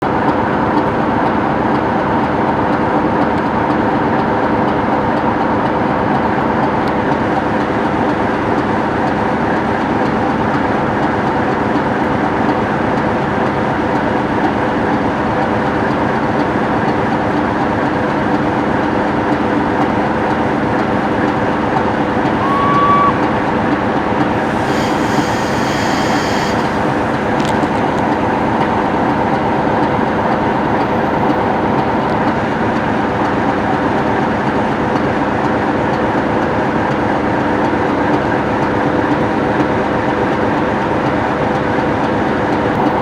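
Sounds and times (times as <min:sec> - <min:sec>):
diesel locomotive engine idling: 0:07.5 - 0:33.8
short whistle: 0:22.3 - 0:23.8, 0:24.4 - 0:28.1.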